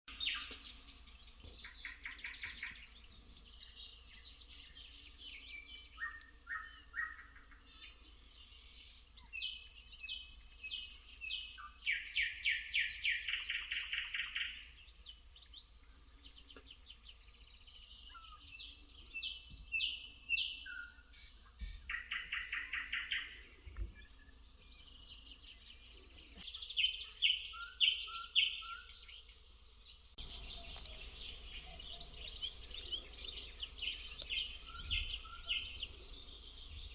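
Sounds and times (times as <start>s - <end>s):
songbirds singing: 0.1s - 36.9s.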